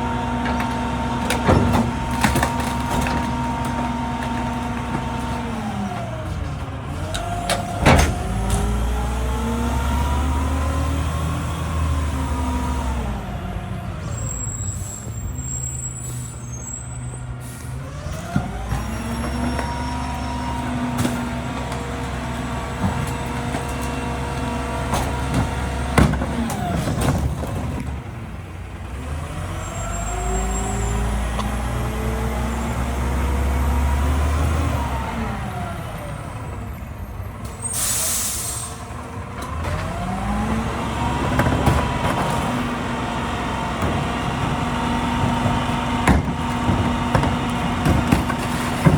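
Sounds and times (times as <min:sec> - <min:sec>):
garbage truck diesel engine revving: 0:00.0 - 0:48.9
air brake hiss: 0:37.6 - 0:38.8.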